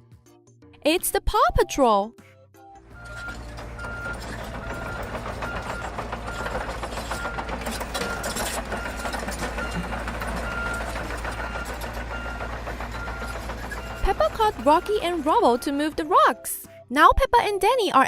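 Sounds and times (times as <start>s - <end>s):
heavy vehicle engine rumbling: 2.8s - 16.4s
rattly knock: 2.9s - 15.3s
reversing alarm beeping: 2.9s - 16.0s.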